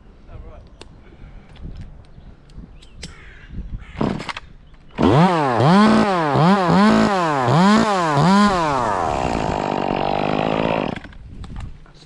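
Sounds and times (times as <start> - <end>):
chainsaw revving: 5.0 - 11.1.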